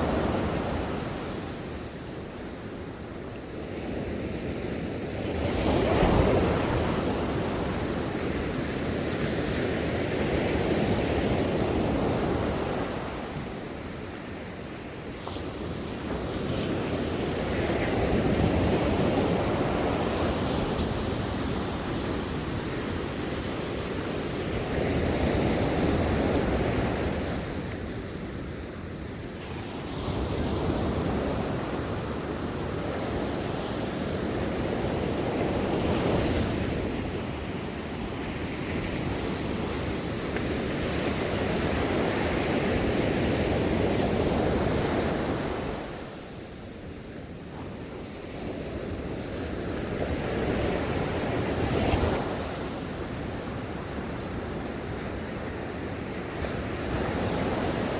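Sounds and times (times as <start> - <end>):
ocean waves breaking on beach: 29.6 - 57.9.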